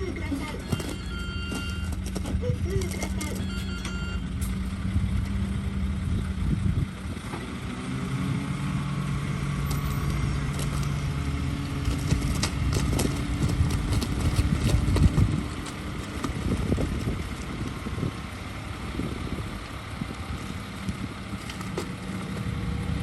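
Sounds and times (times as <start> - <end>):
diesel engine running: 0.0 - 23.0
metallic knocks and clatter: 9.7 - 17.1.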